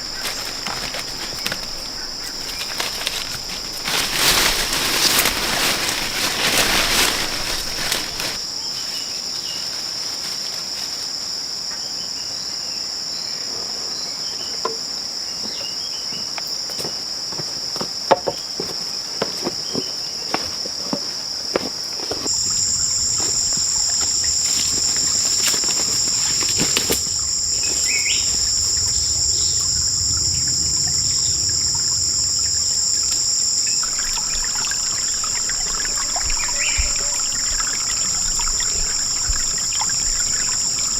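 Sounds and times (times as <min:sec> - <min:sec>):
insects trilling: 0:00.0 - 0:40.9
low rumble: 0:26.1 - 0:40.4.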